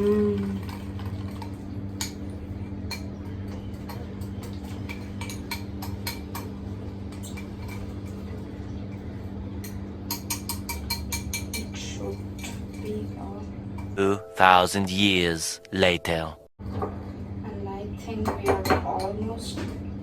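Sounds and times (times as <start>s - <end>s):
spoon clinking against bowl: 0.5s - 8.3s, 9.6s - 13.2s.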